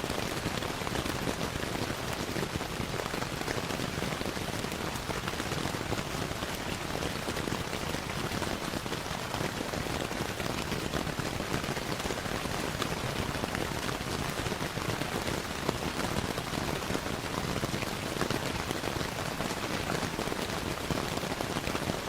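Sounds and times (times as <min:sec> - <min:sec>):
fireplace fire crackling: 0:00.0 - 0:22.0
steady rainfall: 0:00.0 - 0:22.0.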